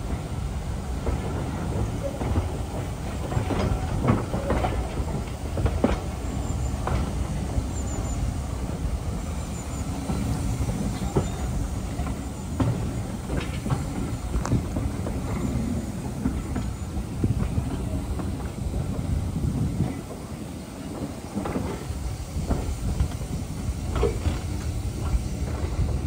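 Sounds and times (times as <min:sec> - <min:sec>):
train rumbling on track: 0:00.0 - 0:26.0.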